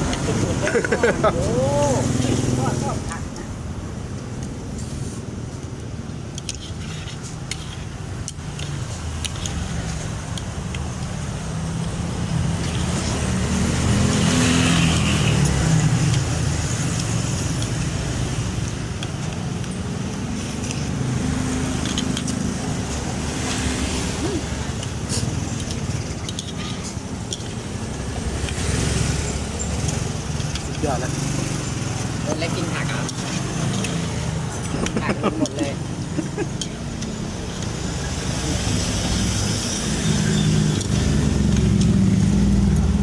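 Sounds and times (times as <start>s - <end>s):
vehicle engine passing: 0.0s - 3.4s, 12.2s - 17.4s, 27.4s - 43.0s.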